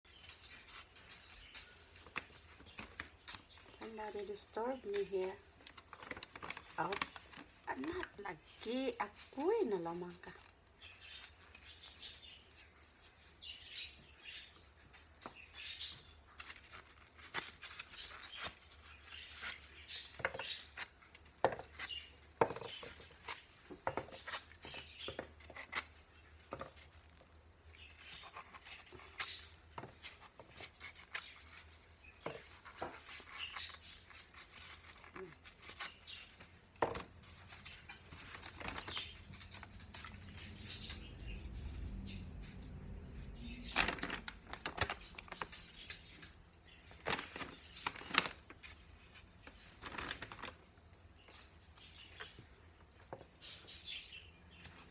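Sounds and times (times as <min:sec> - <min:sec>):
small clicks and taps of handling: 0:00.1 - 0:03.9.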